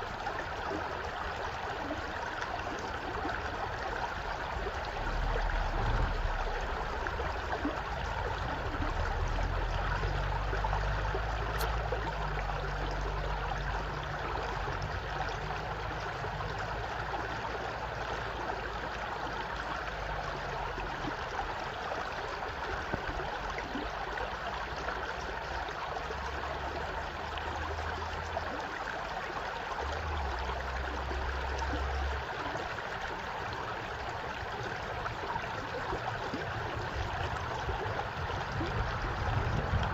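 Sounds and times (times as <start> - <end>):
stream flowing: 0.0 - 39.9
low rumble: 36.8 - 39.9.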